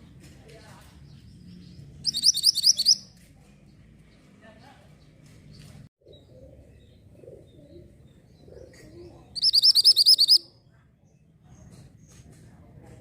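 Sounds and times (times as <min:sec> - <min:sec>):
songbird rapid trill: 0:02.0 - 0:03.1, 0:09.4 - 0:10.5.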